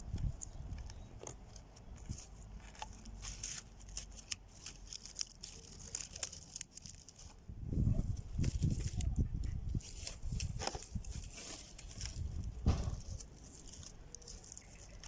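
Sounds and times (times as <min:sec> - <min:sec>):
small irregular clicks: 0:00.0 - 0:07.4, 0:13.0 - 0:15.0
dry stems and twigs rustling: 0:00.0 - 0:15.0.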